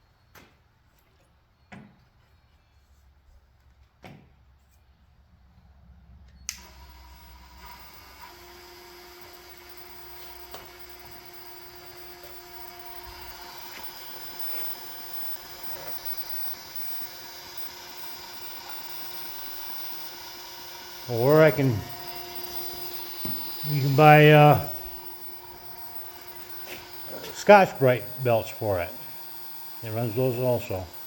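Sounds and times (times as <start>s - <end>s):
belt grinder motor whining: 6.5s - 31.0s.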